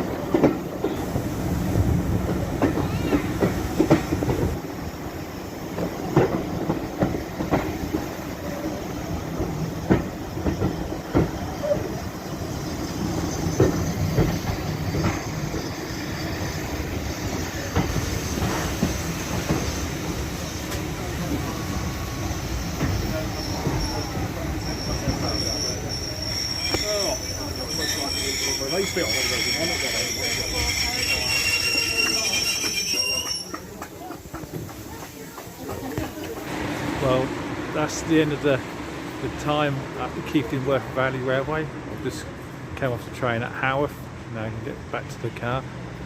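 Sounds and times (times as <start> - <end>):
railway carriage rumbling: 0.0 - 46.0.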